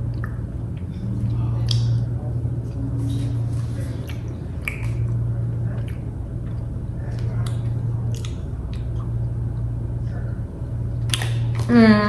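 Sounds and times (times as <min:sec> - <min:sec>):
steady low hum: 0:00.0 - 0:12.0
person chewing: 0:03.1 - 0:09.2
mouth clicks: 0:04.0 - 0:05.1.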